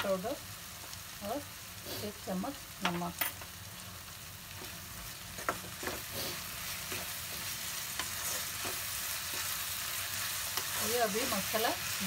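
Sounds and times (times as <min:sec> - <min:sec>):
masala sizzling in a pan: 0:00.0 - 0:12.0
spatula scraping a pan: 0:05.4 - 0:11.4.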